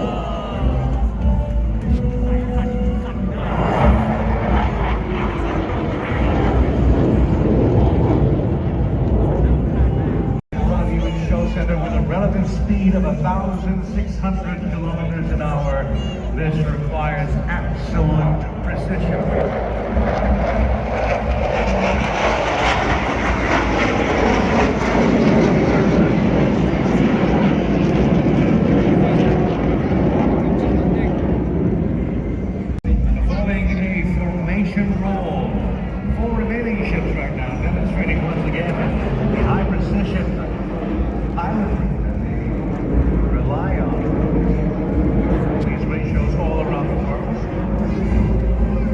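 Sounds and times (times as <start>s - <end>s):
fighter jets flying past: 3.4s - 10.4s, 17.7s - 32.8s, 36.7s - 48.7s.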